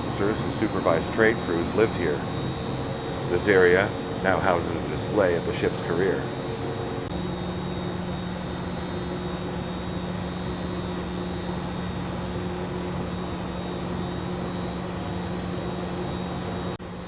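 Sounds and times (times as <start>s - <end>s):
constant low hum: 0.0s - 17.0s
ventilation fan drone: 0.0s - 17.0s.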